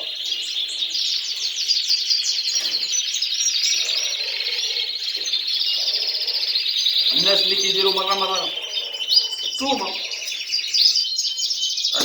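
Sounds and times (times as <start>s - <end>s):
canaries singing: 0.0s - 12.0s.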